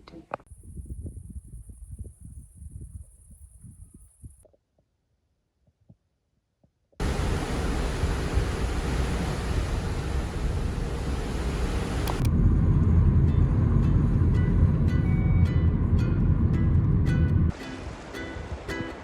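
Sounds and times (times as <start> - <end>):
loud rushing noise: 7.0 - 12.3
deep rumble: 7.0 - 17.5.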